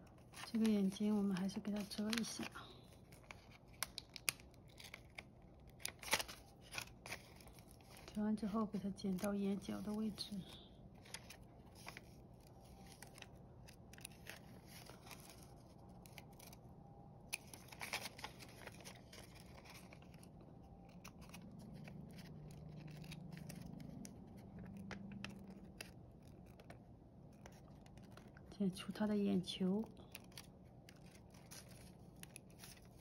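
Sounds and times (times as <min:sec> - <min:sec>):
scissors snipping paper: 0:17.3 - 0:33.0.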